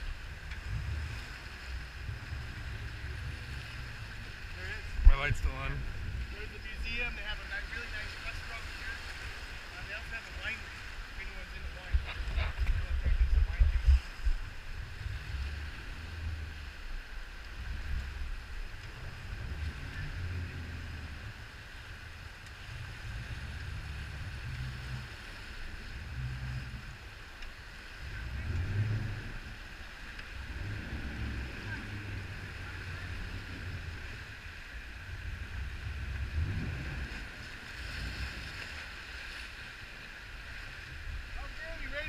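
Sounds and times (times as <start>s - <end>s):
boat engine whine: 0.0s - 13.0s, 14.4s - 41.3s
wind on microphone: 11.5s - 21.5s, 27.9s - 39.0s.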